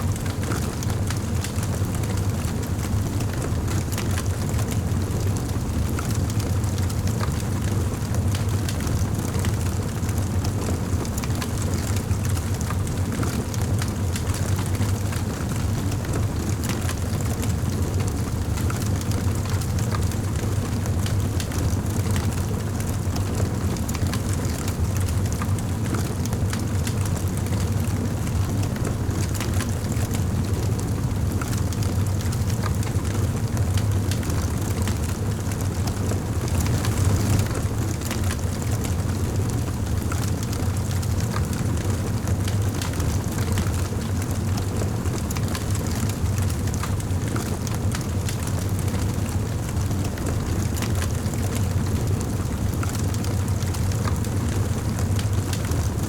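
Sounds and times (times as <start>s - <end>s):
wood fire crackling: 28.8s - 49.9s.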